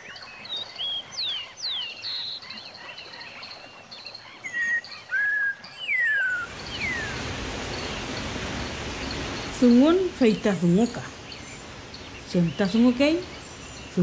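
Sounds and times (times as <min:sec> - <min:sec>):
birds chirping and whistling: 0:04.3 - 0:08.0
waterfall rushing: 0:06.2 - 0:14.0.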